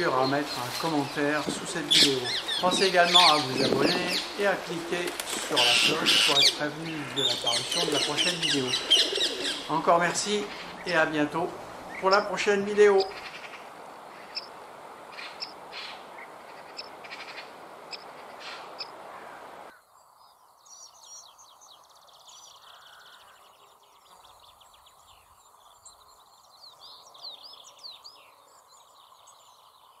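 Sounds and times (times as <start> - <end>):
hissy ambience with clicks: 0.0 - 19.5
background hiss: 0.0 - 30.0
birds chirping: 0.0 - 30.0.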